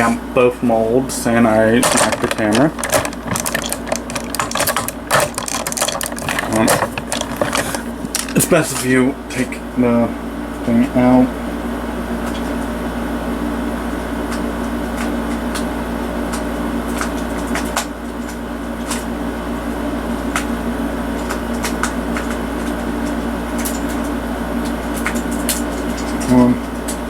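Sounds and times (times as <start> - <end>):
steady mechanical hum: 0.0 - 27.0
plastic toy parts clicking: 1.8 - 8.4.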